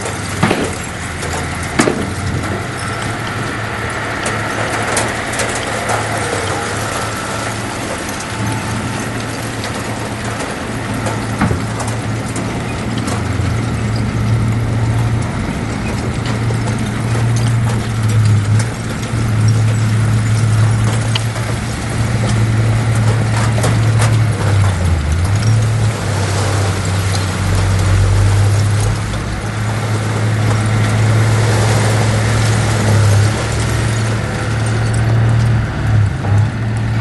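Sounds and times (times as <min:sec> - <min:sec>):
metallic clanks and knocks: 0:00.0 - 0:03.4
heavy machinery diesel engine: 0:00.0 - 0:37.0.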